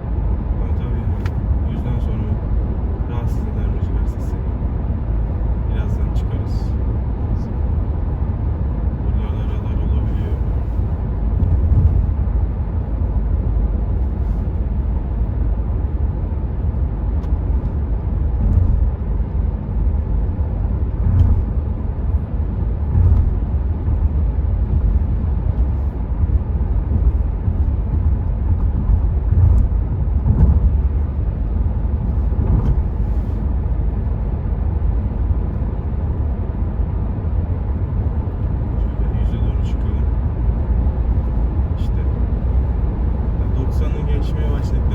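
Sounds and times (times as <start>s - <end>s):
tyre and road rumble: 6.4s - 44.9s
wind noise: 10.6s - 38.7s
faint bumps: 22.7s - 31.4s, 32.0s - 33.4s.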